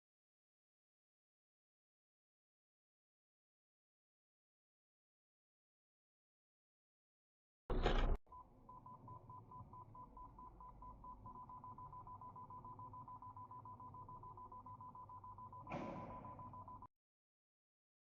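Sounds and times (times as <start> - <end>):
rapid pulsing electronic beep: 8.4 - 16.9.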